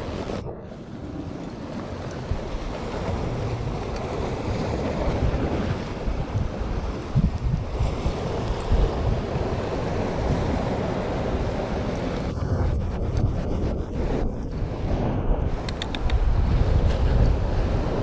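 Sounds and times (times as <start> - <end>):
sea waves washing: 0.0 - 18.0
wind buffeting microphone: 0.0 - 18.0.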